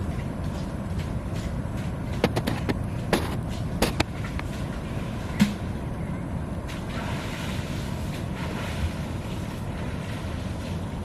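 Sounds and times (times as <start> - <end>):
sharp clicks and knocks: 0.5 - 4.5.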